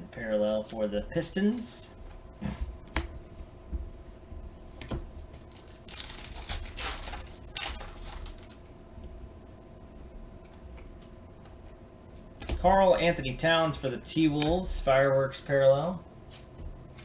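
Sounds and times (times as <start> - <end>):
foil wrapper tearing and crinkling: 5.4 - 8.6.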